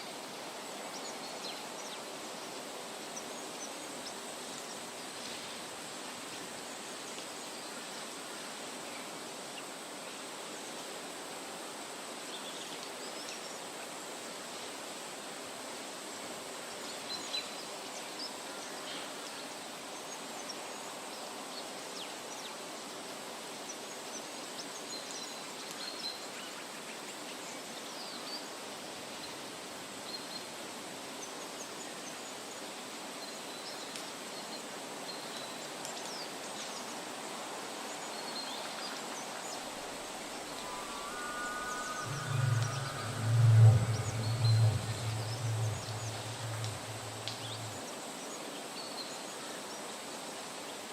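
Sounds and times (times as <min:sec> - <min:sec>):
steady forest hiss: 0:00.0 - 0:50.9
short bird chirps: 0:40.3 - 0:47.7
loud low rumble: 0:40.3 - 0:47.8.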